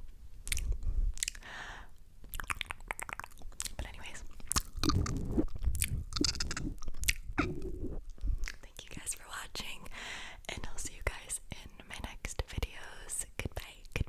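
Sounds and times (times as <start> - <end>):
tongue clicks: 0.4 - 1.5, 2.2 - 7.8, 8.4 - 8.7
wet mouth licking and smacking: 0.4 - 1.6, 2.2 - 8.8.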